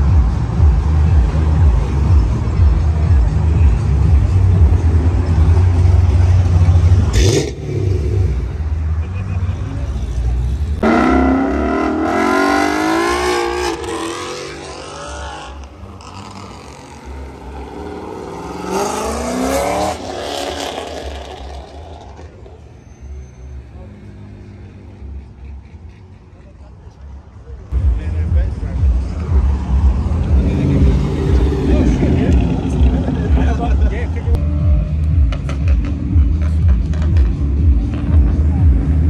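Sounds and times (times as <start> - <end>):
car revving: 0.0 - 25.6, 27.7 - 39.0
car accelerating away: 10.8 - 22.4.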